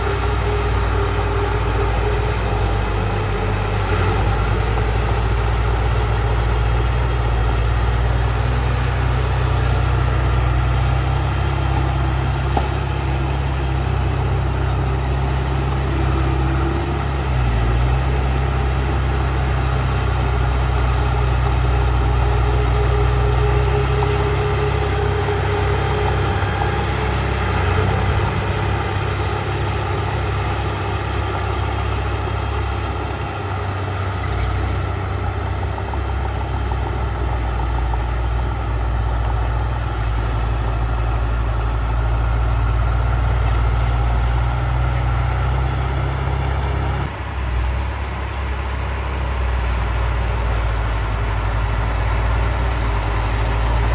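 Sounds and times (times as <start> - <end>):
heavy diesel engine rumbling: 0.0 - 53.9.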